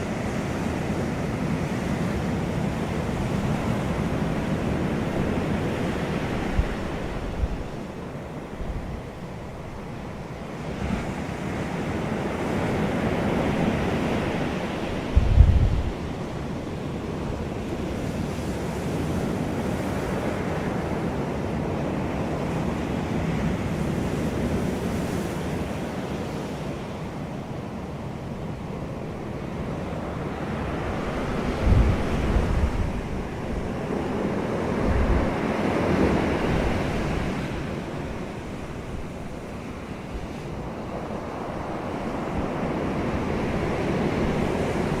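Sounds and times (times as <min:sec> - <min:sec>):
wind blowing: 0:00.0 - 0:18.2, 0:28.6 - 0:45.0
wind gusts hitting microphone: 0:12.6 - 0:16.4, 0:30.2 - 0:45.0.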